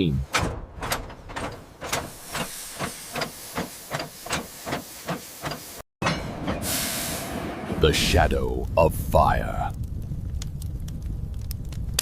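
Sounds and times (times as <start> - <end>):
bright hiss: 6.6 - 7.4.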